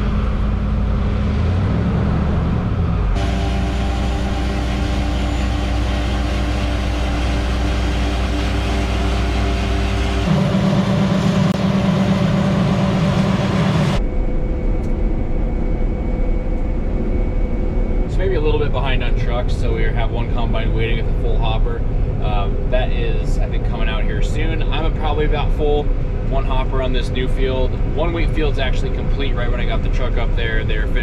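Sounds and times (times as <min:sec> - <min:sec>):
truck engine running: 0:00.0 - 0:14.3.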